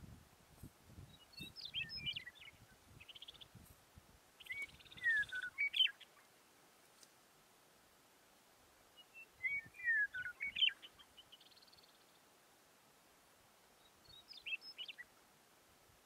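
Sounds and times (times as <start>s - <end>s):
songbird whistling: 1.1s - 3.4s, 4.4s - 6.1s, 9.0s - 11.9s, 13.8s - 15.1s
faint high bird trill: 4.4s - 6.3s, 9.0s - 12.2s.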